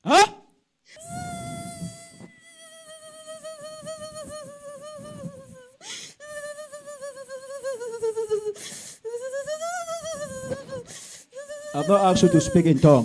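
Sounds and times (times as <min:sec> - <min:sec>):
woman wailing: 0:01.0 - 0:13.0
woman taking sharp breath: 0:05.8 - 0:06.2, 0:08.6 - 0:09.1, 0:10.9 - 0:11.4.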